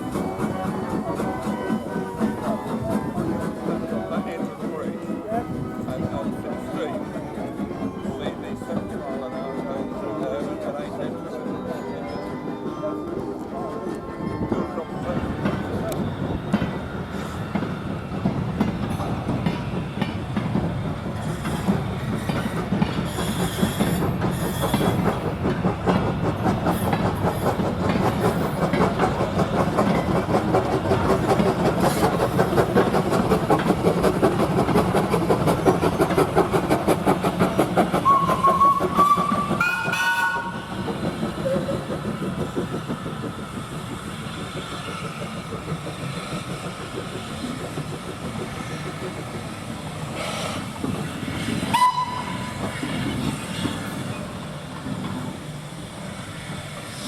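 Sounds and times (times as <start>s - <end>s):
train clattering on tracks: 0.0s - 57.0s
train whistle: 38.0s - 40.8s, 51.7s - 52.6s.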